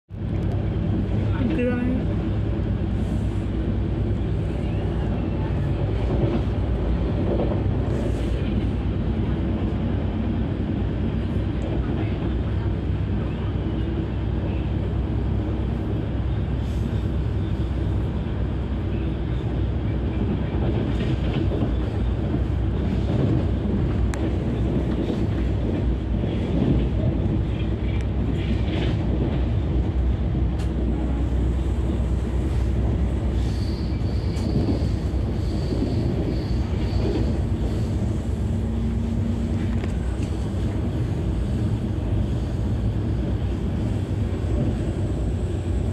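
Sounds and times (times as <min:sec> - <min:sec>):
train wheels rumbling on rails: 0:00.1 - 0:45.9
faint high squeal: 0:33.4 - 0:37.9.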